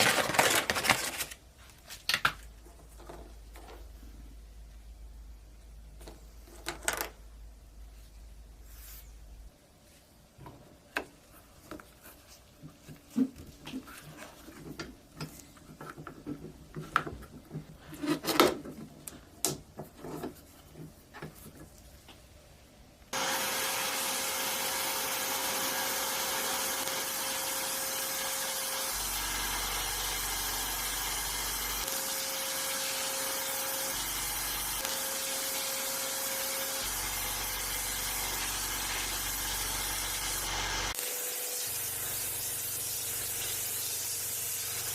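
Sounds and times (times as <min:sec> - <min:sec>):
loud hissing tool: 0:23.2 - 0:44.9.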